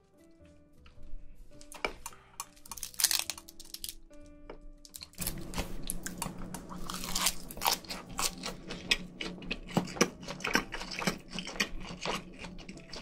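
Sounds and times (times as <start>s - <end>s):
crunchy chewing: 1.6s - 4.1s, 4.9s - 13.0s
faint low hum: 5.2s - 13.0s.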